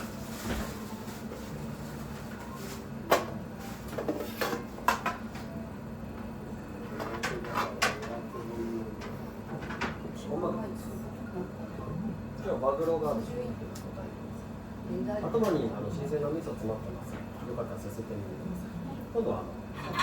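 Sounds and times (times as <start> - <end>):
dishes and utensils clinking: 19.7 - 20.0.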